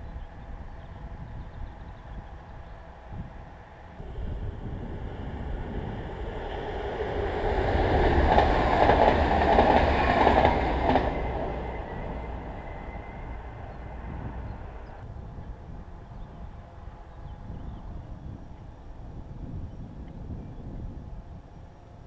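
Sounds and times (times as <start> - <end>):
electric train passing: 2.3 - 17.6.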